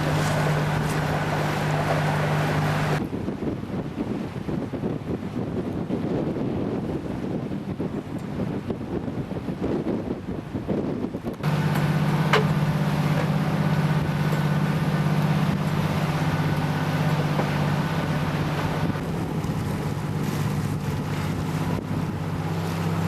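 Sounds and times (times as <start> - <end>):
water rushing past: 0.0 - 5.6, 11.3 - 23.0
boat motor humming: 0.0 - 23.0
wind rushing: 12.6 - 22.5.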